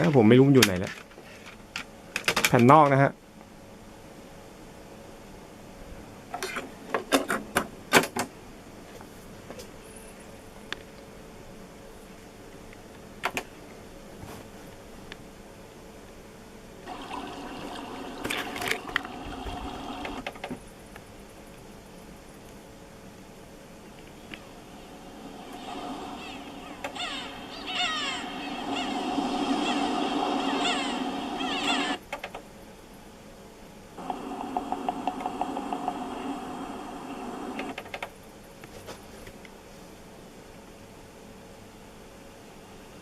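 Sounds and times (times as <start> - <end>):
cd mechanism whirring: 16.9 - 20.6, 24.0 - 32.5, 34.0 - 38.1
mechanism clicks: 32.0 - 32.5.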